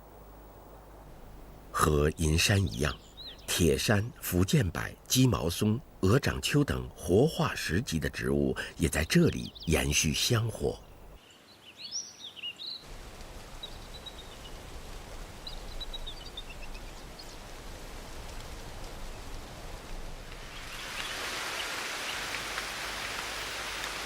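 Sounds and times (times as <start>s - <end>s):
rain falling on forest: 0.0s - 24.0s
faint bird chirps: 1.8s - 6.5s.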